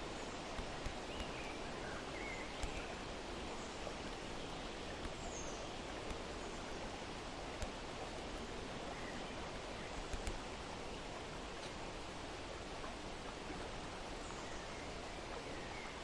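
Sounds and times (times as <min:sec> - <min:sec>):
hiss of water or wind: 0:00.0 - 0:16.0
faint bird chirp: 0:01.1 - 0:03.0
soft clicks: 0:02.6 - 0:02.8, 0:10.0 - 0:10.4.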